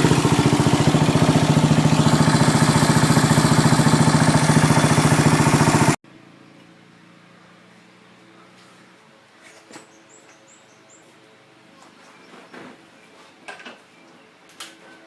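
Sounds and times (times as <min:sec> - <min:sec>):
motorcycle engine idling: 0:00.0 - 0:06.0.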